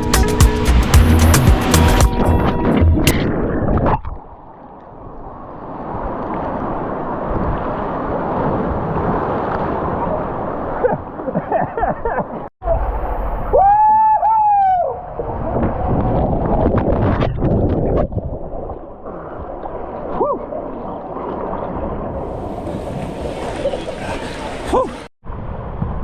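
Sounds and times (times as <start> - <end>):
rushing splashing water: 17.9 - 26.0.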